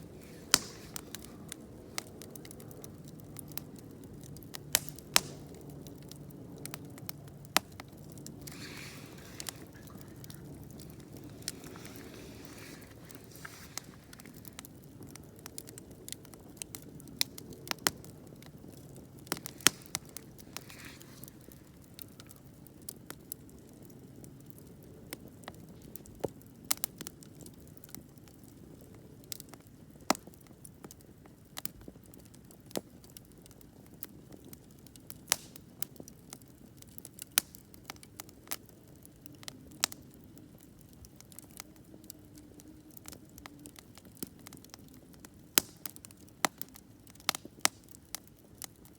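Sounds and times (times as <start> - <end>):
fire burning hiss: 0.0 - 23.3
campfire pops and snaps: 0.0 - 28.6, 29.3 - 48.9.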